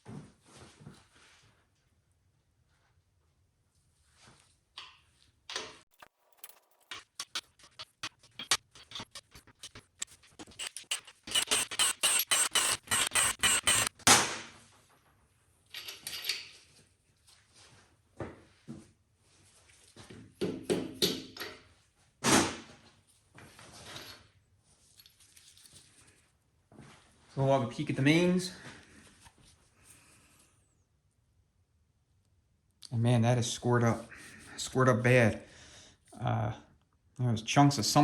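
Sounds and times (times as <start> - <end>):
socket ratchet clicking: 10.0 - 14.1
metal tools clinking and knocking: 15.7 - 16.6.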